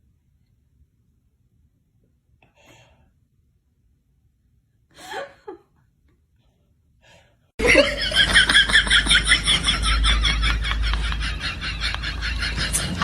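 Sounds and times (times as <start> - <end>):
hard rhythmic laughter: 7.6 - 13.0.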